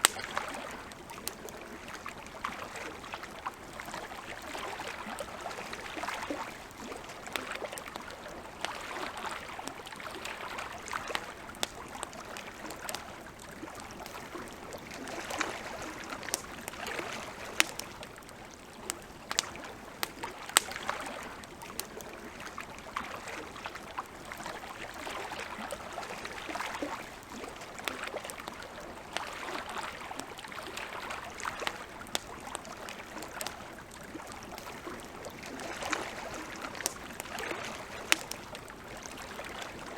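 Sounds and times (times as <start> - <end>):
sharp pops of burning wood: 0.0 - 0.4, 14.8 - 18.1, 18.9 - 20.9, 36.5 - 38.6
campfire crackling: 0.0 - 39.9
lake water lapping: 0.0 - 39.9.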